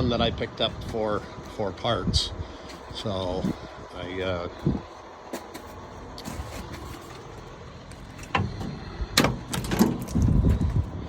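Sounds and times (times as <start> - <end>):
low rumble: 7.4 - 11.0.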